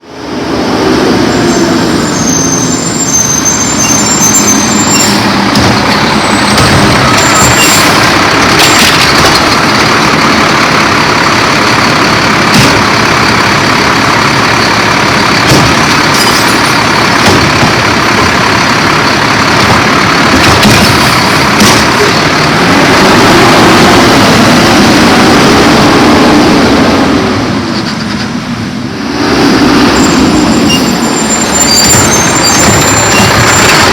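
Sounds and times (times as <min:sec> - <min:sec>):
garbage truck engine running: 0:00.0 - 0:33.9
sharp metal clanks: 0:05.0 - 0:09.7, 0:15.4 - 0:17.8, 0:19.6 - 0:22.2.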